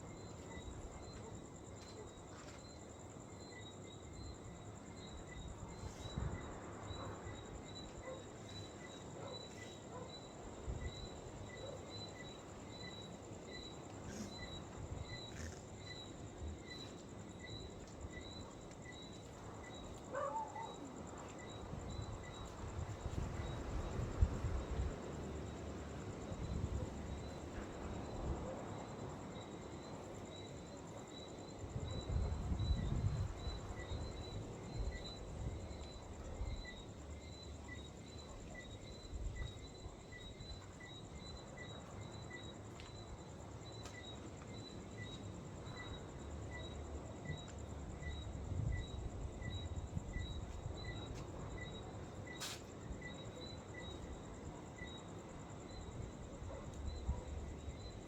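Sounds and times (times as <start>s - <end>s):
insects chirping: 0.0s - 58.0s
wind buffeting microphone: 31.8s - 34.2s.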